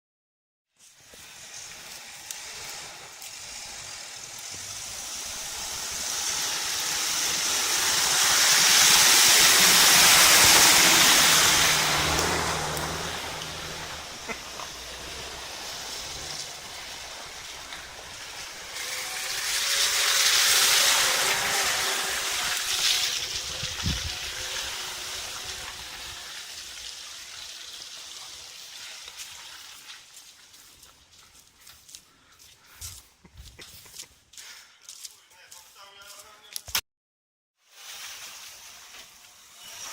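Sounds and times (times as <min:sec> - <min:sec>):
vehicle passing: 0:01.2 - 0:26.8.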